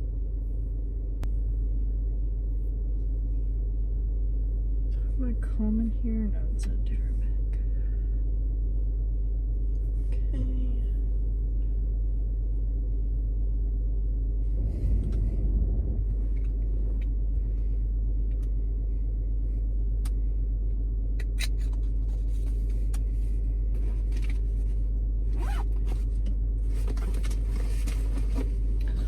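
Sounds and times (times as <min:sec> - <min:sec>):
brief louder noise: 0:14.5 - 0:16.9.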